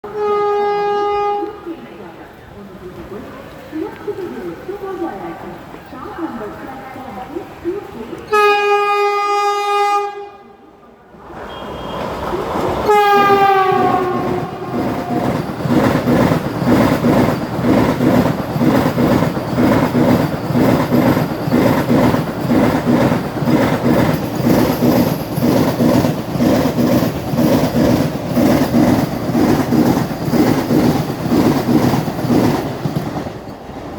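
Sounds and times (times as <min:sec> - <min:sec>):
train horn blasts: 0:00.0 - 0:01.7, 0:08.3 - 0:10.6, 0:11.4 - 0:12.2, 0:12.8 - 0:15.4
train wheels clattering over rail joints: 0:12.6 - 0:33.9.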